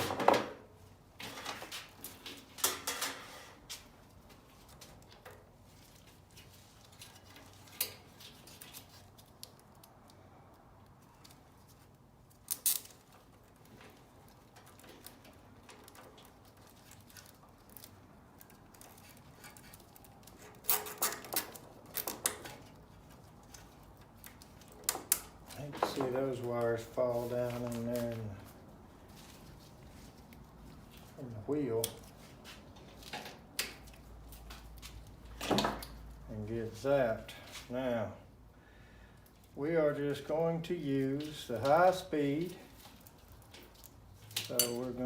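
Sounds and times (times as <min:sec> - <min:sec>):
low steady background noise: 0:00.0 - 0:45.0
clicks and rattles of hands working: 0:01.2 - 0:28.6, 0:31.8 - 0:36.1, 0:42.6 - 0:45.0.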